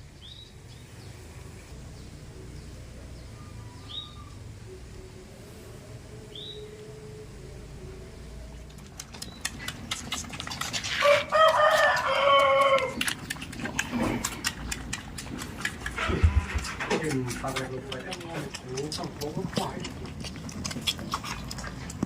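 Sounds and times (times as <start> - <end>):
small bird chirping: 1.9 - 5.1, 6.3 - 6.8, 8.1 - 10.6
rooster crowing: 11.0 - 13.0.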